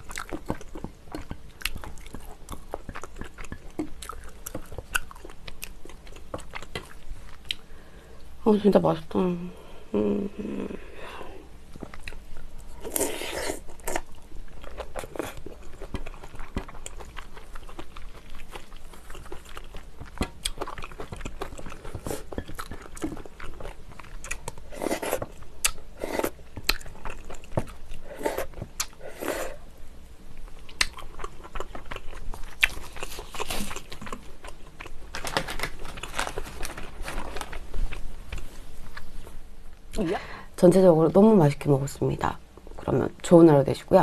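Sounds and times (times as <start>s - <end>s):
chewing and biting stew: 0.0s - 7.7s, 11.8s - 29.6s, 30.4s - 39.1s.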